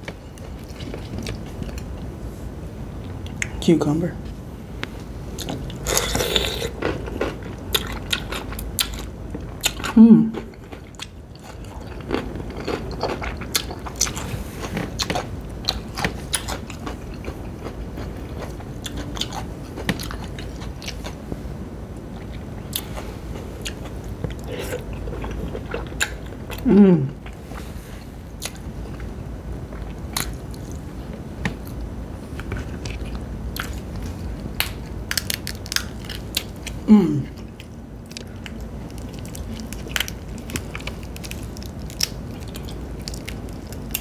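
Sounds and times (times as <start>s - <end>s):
crunching cucumber: 5.4s - 21.2s, 32.4s - 44.0s
person humming: 10.0s - 10.4s, 26.6s - 27.2s, 36.8s - 37.4s.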